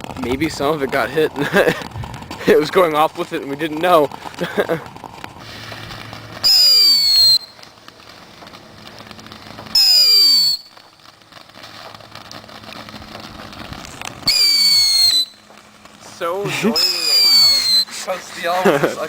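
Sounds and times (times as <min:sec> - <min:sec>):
fireworks fizzing: 0:00.0 - 0:19.0
fireworks whistling shrieks: 0:05.3 - 0:08.5, 0:09.2 - 0:13.0, 0:13.8 - 0:18.6.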